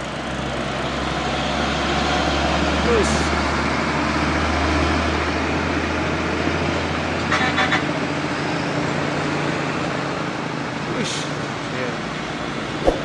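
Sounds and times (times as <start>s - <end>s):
road noise: 7.8s - 13.0s.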